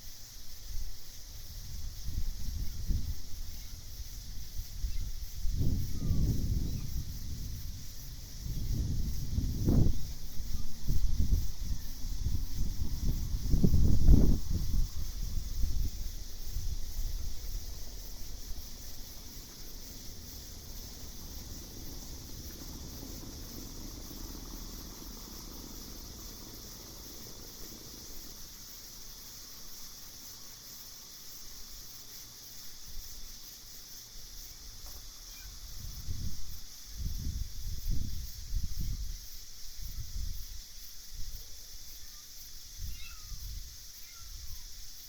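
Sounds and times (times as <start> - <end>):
insect chorus chirring: 0.0 - 45.0
wind gusts rumbling: 1.3 - 30.4.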